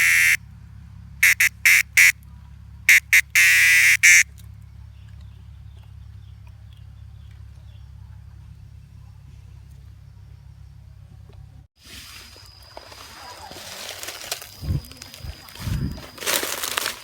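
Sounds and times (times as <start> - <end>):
harsh quacking bird calls: 0.0 - 0.4, 1.2 - 2.2, 2.9 - 4.2.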